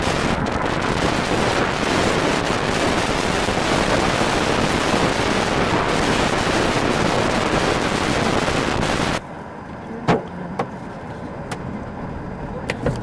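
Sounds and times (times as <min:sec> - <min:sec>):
hailstones pelting a car: 0:00.0 - 0:09.2.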